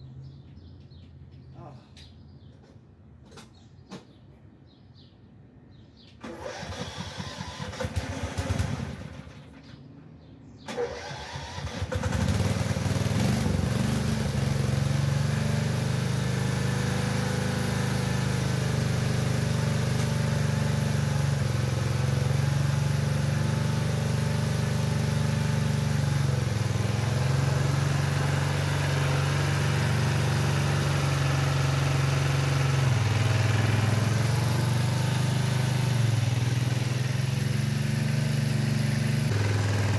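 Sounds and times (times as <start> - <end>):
tractor engine cranking and running: 6.2 - 9.8, 10.7 - 16.0, 17.0 - 39.9.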